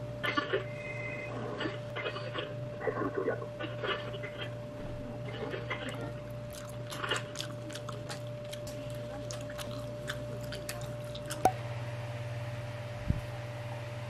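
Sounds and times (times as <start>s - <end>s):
steady electrical hum: 0.0s - 14.0s
wet chewing: 5.3s - 11.6s.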